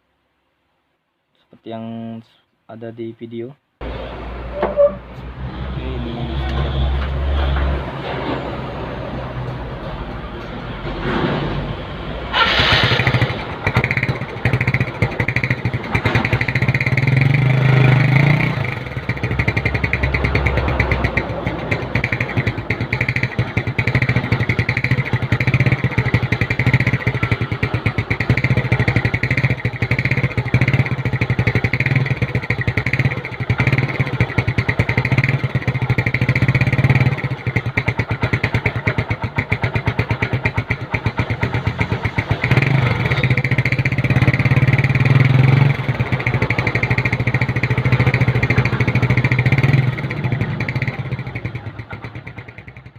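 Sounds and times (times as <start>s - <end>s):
scooter engine revving and idling: 11.0s - 52.9s.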